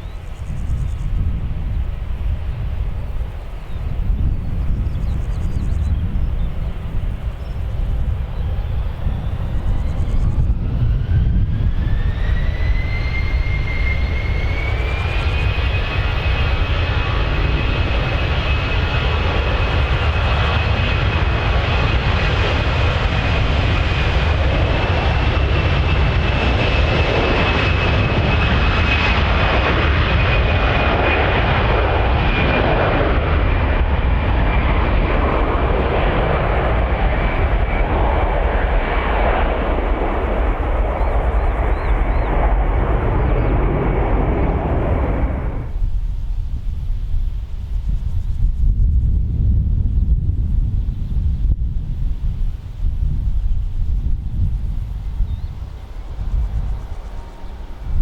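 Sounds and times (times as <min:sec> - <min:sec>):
jet engines spooling up: 0:00.0 - 0:48.5, 0:53.3 - 0:58.0.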